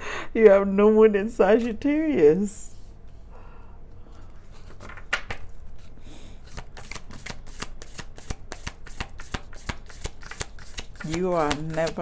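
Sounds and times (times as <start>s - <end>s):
cards being shuffled: 4.5s - 12.0s.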